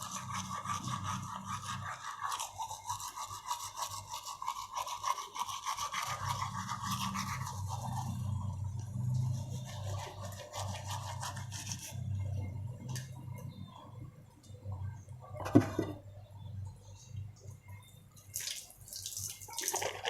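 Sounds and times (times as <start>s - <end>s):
toothbrush scrubbing teeth: 0.0s - 12.0s
low steady hum: 6.4s - 19.4s.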